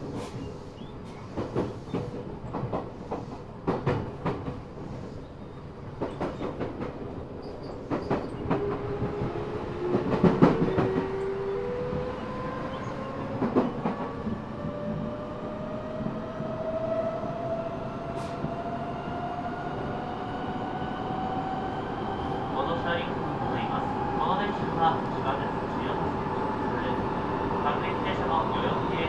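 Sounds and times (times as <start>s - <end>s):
train inverter whining: 7.8s - 29.0s.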